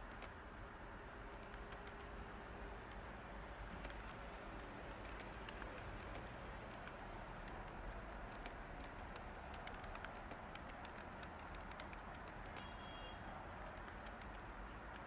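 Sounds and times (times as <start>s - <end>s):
computer keyboard keystroke clicks: 0.0s - 0.4s, 1.4s - 2.2s, 3.7s - 12.9s, 13.7s - 15.0s
faint white-noise hiss: 0.0s - 15.0s.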